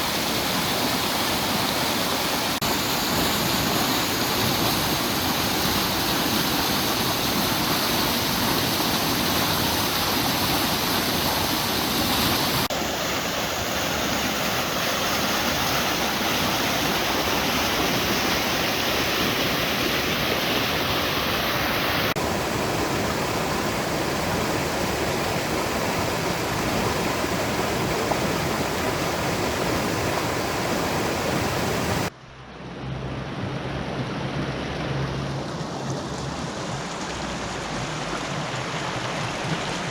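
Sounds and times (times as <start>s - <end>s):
low hum: 32.1s - 36.4s.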